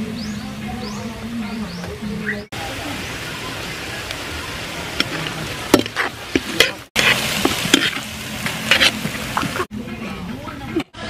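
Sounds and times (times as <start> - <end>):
food sizzling in a wok: 2.6 - 9.7
spatula scraping a pan: 5.0 - 9.7.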